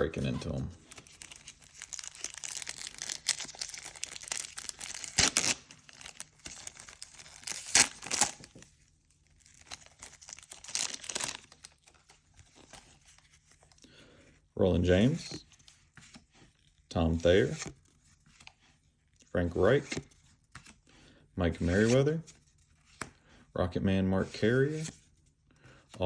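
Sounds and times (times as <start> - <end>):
wrappers tearing and crinkling: 0.9 - 8.6, 9.4 - 12.0.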